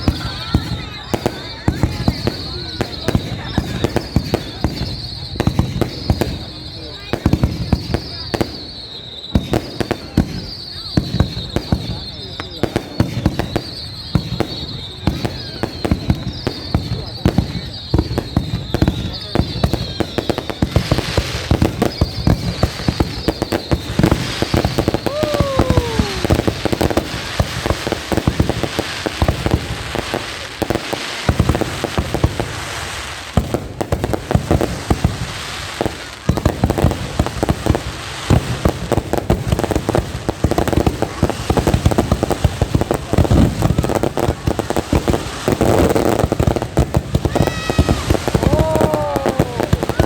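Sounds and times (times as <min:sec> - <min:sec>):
fireworks crackling and popping: 0:00.0 - 0:50.0.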